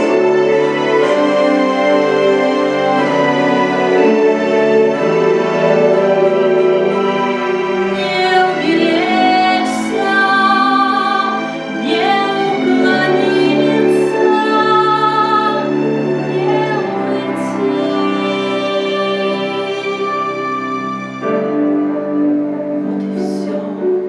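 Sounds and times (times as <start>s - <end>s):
female ensemble singing in harmony: 7.6s - 21.1s, 22.8s - 24.0s.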